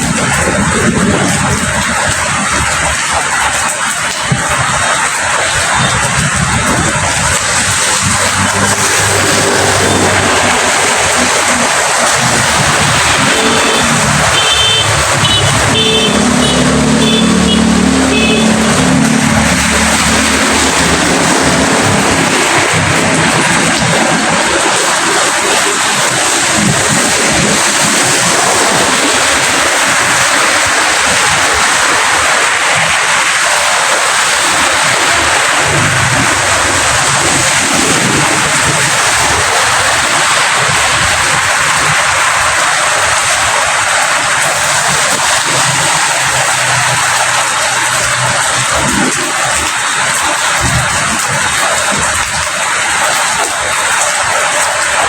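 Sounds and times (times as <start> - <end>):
low engine drone: 7.8 - 24.4
steady rain hiss: 18.0 - 55.0.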